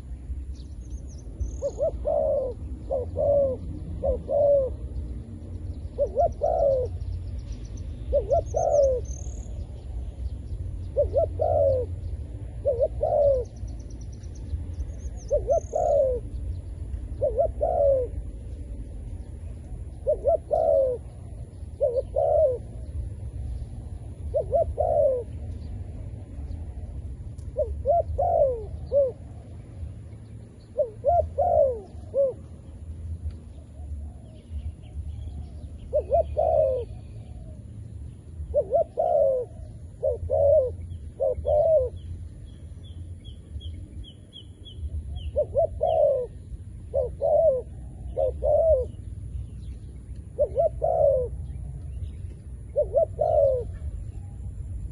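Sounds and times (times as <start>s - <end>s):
small bird chirping: 0.0s - 25.8s
dove cooing: 1.5s - 7.3s, 8.0s - 10.1s, 10.8s - 13.9s, 15.1s - 25.6s, 26.3s - 29.6s, 30.6s - 32.8s, 33.5s - 37.8s, 38.4s - 42.2s, 44.8s - 54.9s.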